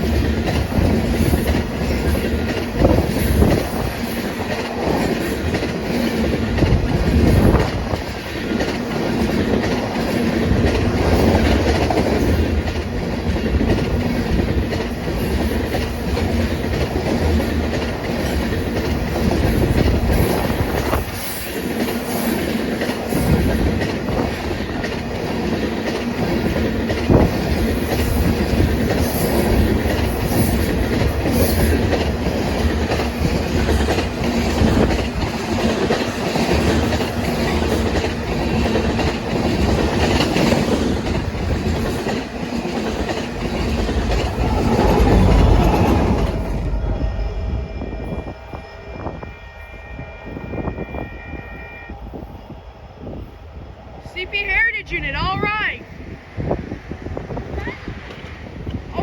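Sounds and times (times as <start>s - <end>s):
wheels clicking over rail joints: 0.0s - 46.8s
freight train rumbling: 0.0s - 59.0s.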